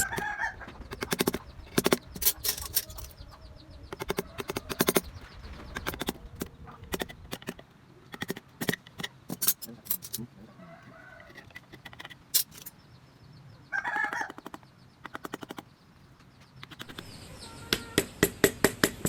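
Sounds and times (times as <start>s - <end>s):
carving tools tapping into wood: 0.9s - 2.2s, 3.9s - 5.1s, 6.9s - 9.4s, 14.3s - 15.7s, 17.7s - 19.0s.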